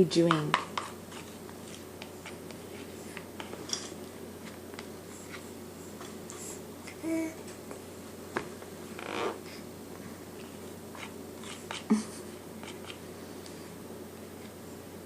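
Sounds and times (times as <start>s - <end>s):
baby vocalization: 6.4s - 7.4s.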